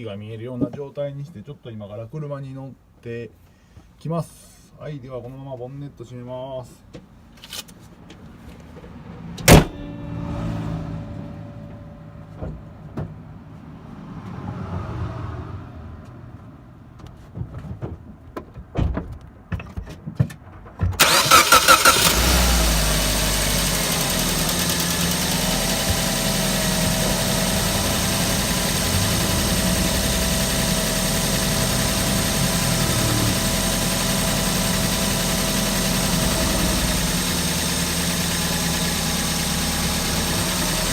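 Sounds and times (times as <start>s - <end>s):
car engine starting and idling: 9.1s - 13.9s, 21.0s - 40.9s.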